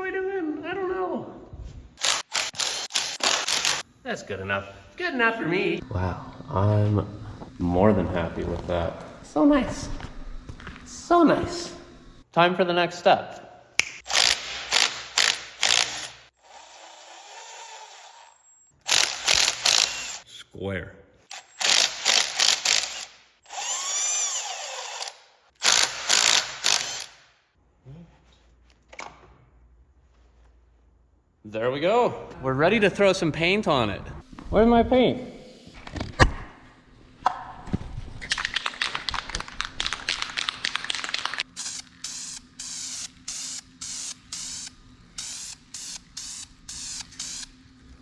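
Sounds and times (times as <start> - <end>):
power tool whining: 2.0 - 3.9, 14.1 - 20.2, 21.3 - 27.2.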